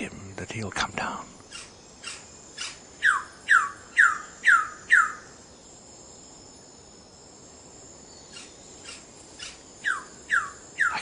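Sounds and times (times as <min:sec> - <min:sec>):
high insect drone: 0:00.0 - 0:11.0
bird calling downslurred notes: 0:08.3 - 0:11.0.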